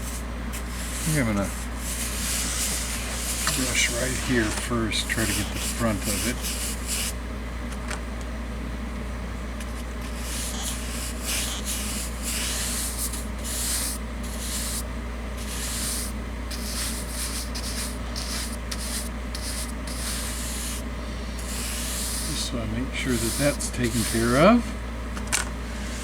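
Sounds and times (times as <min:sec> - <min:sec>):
paintbrush scratchy swishes: 0:00.0 - 0:07.1, 0:15.4 - 0:20.8, 0:21.4 - 0:22.5, 0:23.1 - 0:24.4
steady low hum: 0:00.0 - 0:26.0.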